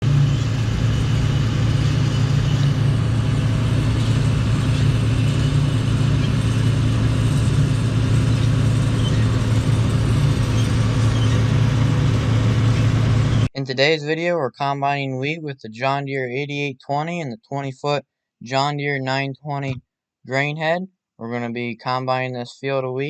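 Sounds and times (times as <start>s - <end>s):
diesel engine droning: 0.0s - 14.6s.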